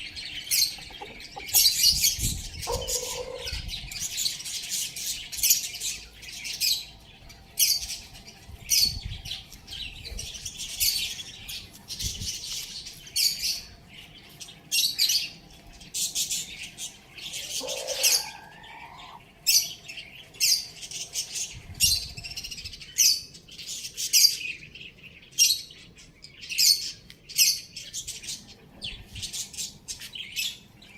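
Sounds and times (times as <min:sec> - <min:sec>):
small birds chirping: 0:00.0 - 0:30.9
bird squawk: 0:02.7 - 0:03.6, 0:17.3 - 0:19.2.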